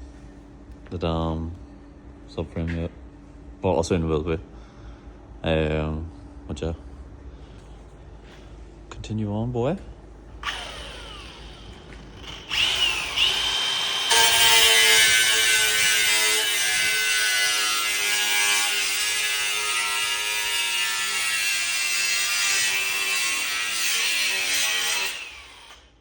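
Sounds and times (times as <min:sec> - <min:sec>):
power tool cutting sheet metal: 0:10.4 - 0:25.9.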